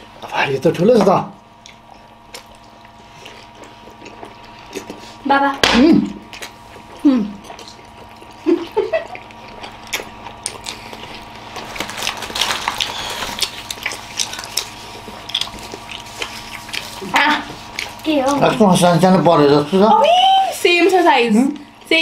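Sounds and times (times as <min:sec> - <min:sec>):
people chewing food: 0:00.0 - 0:22.0.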